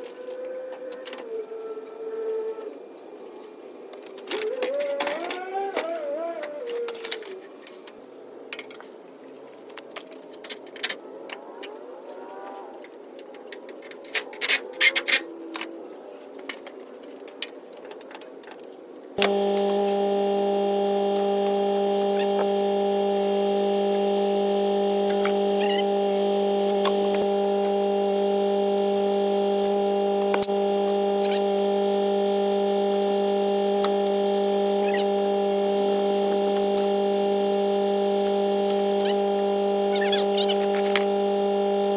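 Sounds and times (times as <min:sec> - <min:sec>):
steady multi-tone hum: 0:19.2 - 0:41.9.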